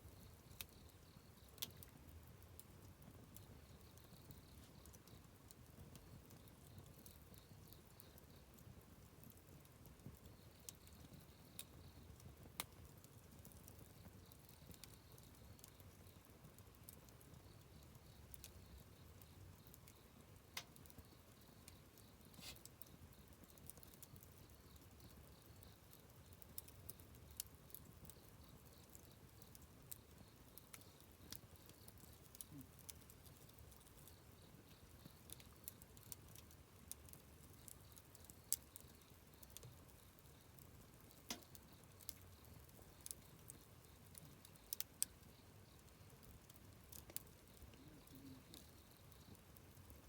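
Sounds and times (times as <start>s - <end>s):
campfire crackling: 0.0s - 50.0s.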